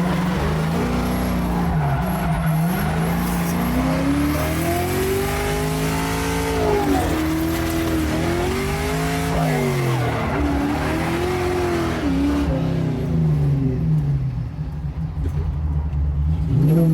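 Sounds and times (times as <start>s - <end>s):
car engine revving hard: 0.0s - 13.1s.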